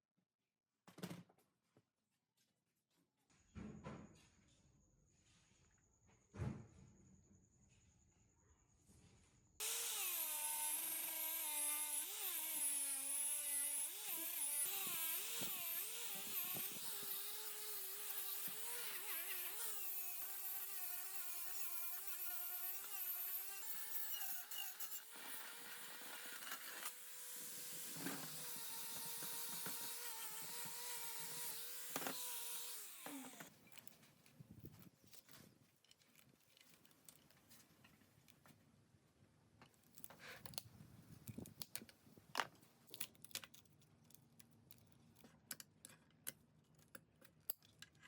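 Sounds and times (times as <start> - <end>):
power tool whining: 9.6 - 33.5.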